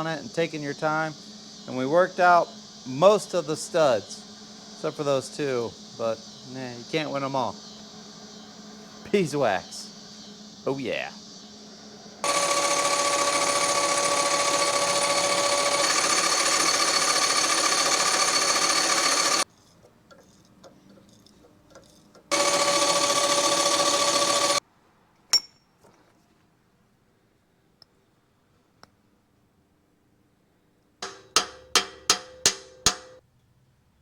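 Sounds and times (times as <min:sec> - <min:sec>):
power tool whining: 0:12.2 - 0:19.5, 0:22.3 - 0:24.6.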